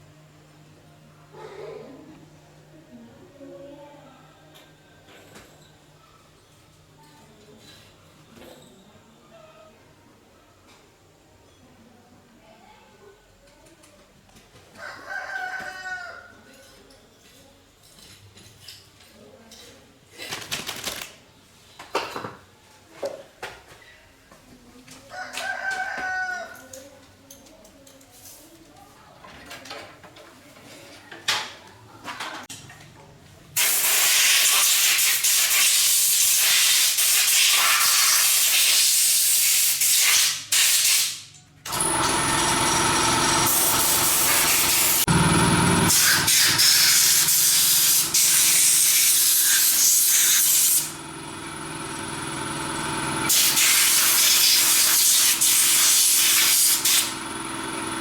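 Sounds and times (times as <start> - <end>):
loud spray hissing: 33.6 - 41.2, 42.5 - 51.0, 53.2 - 57.1
motor-driven tool whining: 41.7 - 58.0.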